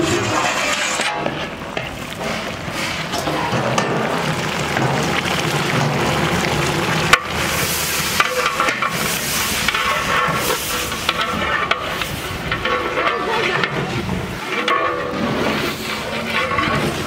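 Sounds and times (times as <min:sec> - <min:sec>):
chicken sizzling in oil: 0:01.6 - 0:13.6
metal spatula stirring in pot: 0:07.1 - 0:17.0.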